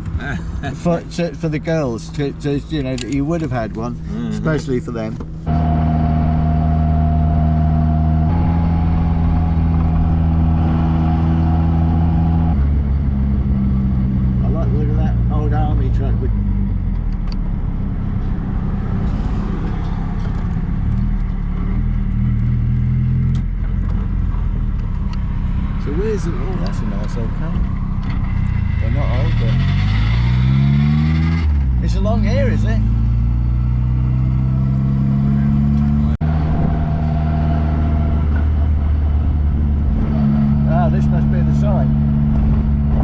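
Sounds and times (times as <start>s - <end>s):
car engine running: 0.0s - 30.8s, 31.5s - 43.0s
road and wind noise: 0.0s - 43.0s.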